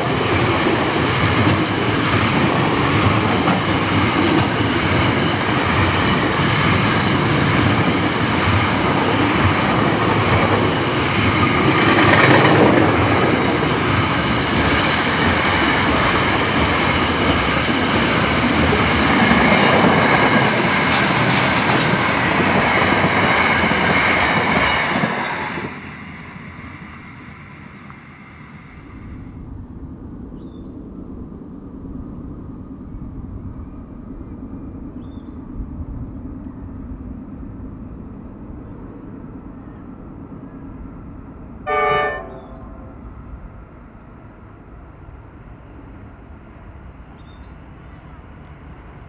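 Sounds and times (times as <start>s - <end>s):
freight train wagons rumbling: 0.0s - 49.0s
train horn toot: 41.7s - 43.1s
faint bird chirps: 42.3s - 48.6s.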